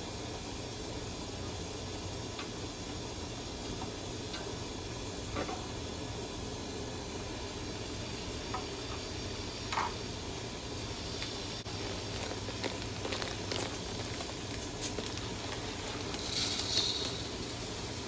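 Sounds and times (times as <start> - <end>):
background hiss: 10.4 - 18.0.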